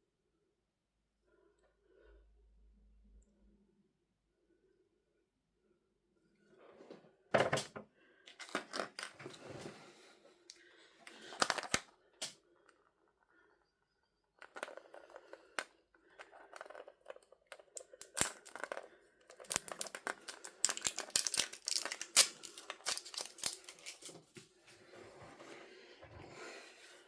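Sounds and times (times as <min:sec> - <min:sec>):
packaging crinkling and tearing: 0:11.1 - 0:11.9, 0:17.6 - 0:24.3.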